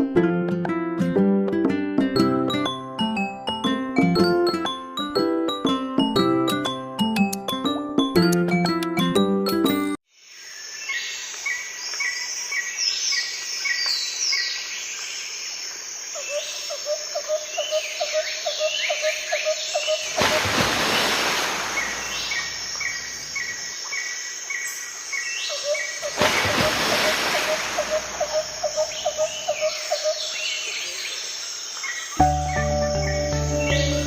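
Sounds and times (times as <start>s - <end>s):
keyboard music: 0.0s - 10.0s, 32.2s - 34.0s.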